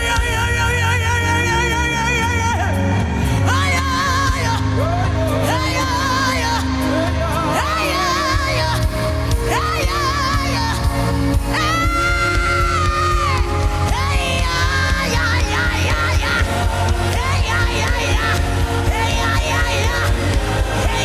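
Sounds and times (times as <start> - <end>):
band with steady bass beat: 0.0 - 21.0.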